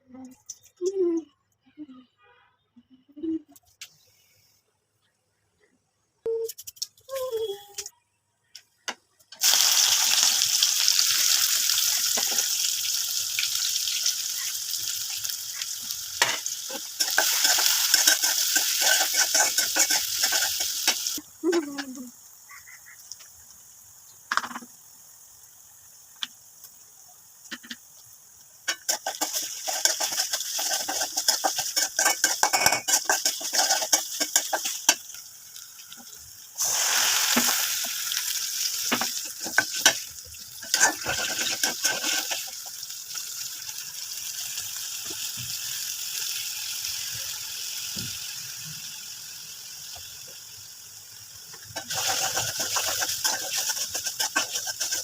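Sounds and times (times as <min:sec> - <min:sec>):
loud sizzle: 0:09.3 - 0:55.0
chicken sizzling in a pan: 0:09.4 - 0:55.0
spatula scraping a pan: 0:16.2 - 0:21.1, 0:28.7 - 0:35.0, 0:38.9 - 0:40.0, 0:40.6 - 0:42.7, 0:51.8 - 0:55.0.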